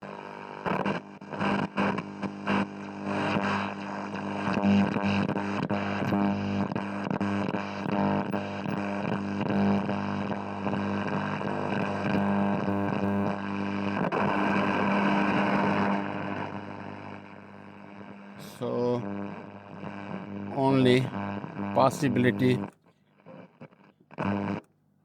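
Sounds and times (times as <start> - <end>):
radio crackles: 0.0 - 24.7
radio buzzing warbling drone: 13.9 - 22.7.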